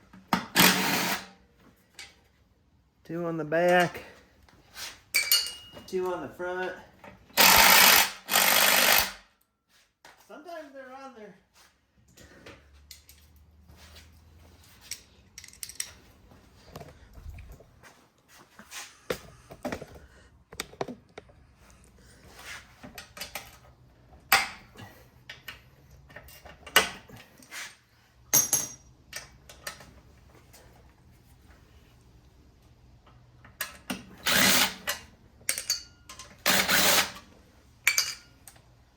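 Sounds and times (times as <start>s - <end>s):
metal tools clinking and knocking: 5.1s - 6.2s, 14.8s - 16.1s, 28.3s - 29.8s, 33.6s - 37.0s, 37.8s - 38.6s.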